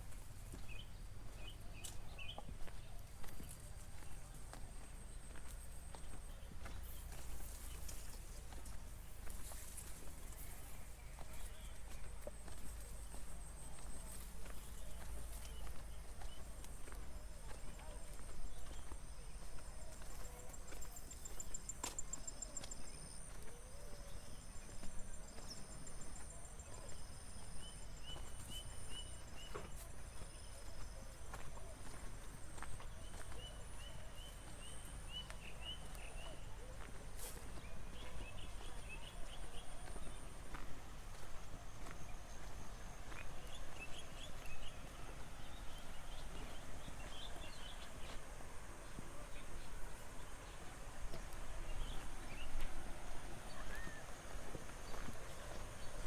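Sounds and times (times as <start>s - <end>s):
bird chirping: 0.0s - 32.0s, 41.8s - 52.8s
soft footsteps on path: 0.0s - 56.0s.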